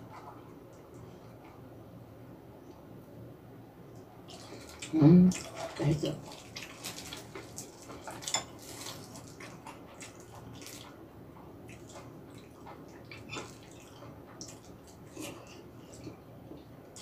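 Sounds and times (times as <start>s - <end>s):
person chewing wetly: 4.2s - 17.0s.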